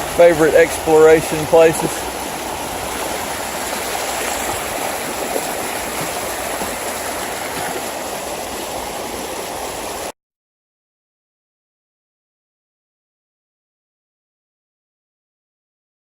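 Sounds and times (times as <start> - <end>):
water rushing through a ditch: 0.0 - 10.1.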